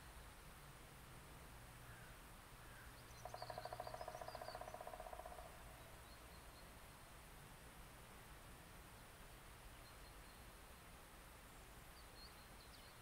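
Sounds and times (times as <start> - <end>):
bird trilling: 3.2 - 5.4.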